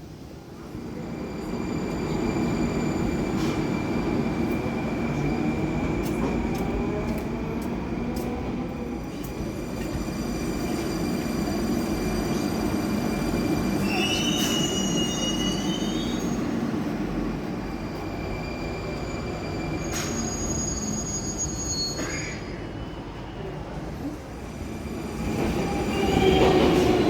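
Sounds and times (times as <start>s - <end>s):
metro train rumbling: 0.0s - 27.0s
brake and wheel squeal: 13.2s - 16.4s, 18.2s - 23.1s.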